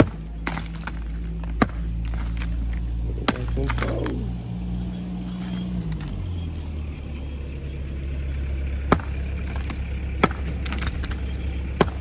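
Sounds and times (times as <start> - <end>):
hammer knocks ringing: 0.0 - 6.2, 8.9 - 12.0
low engine hum: 0.0 - 12.0.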